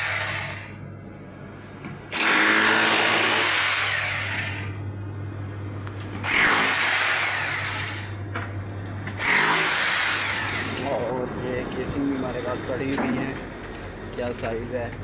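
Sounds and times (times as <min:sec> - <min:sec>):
handheld power tool running: 0:00.0 - 0:00.7, 0:02.1 - 0:04.8, 0:06.2 - 0:08.2, 0:09.1 - 0:11.1
steady low hum: 0:00.0 - 0:15.0.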